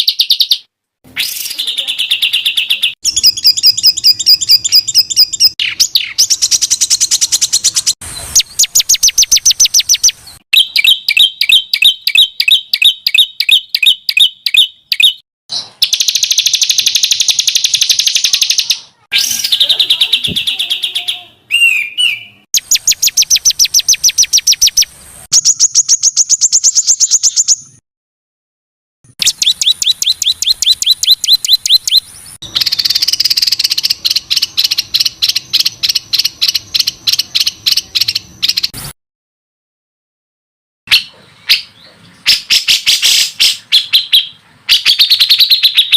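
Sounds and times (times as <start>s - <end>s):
songbird rapid sharp notes: 0.0s - 20.6s, 21.6s - 27.7s, 29.1s - 38.8s.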